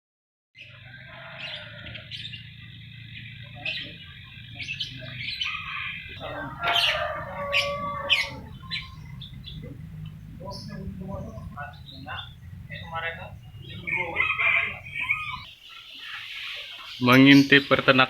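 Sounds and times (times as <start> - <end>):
lovebirds chattering: 0.6 - 18.0
shrill bird calls: 4.6 - 17.6.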